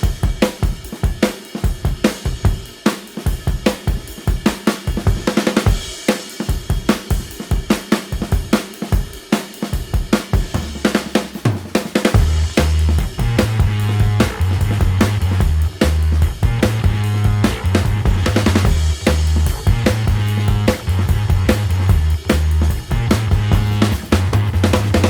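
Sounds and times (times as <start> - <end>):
fast drum kit beat: 0.0 - 25.0
sustained bass: 12.2 - 25.0.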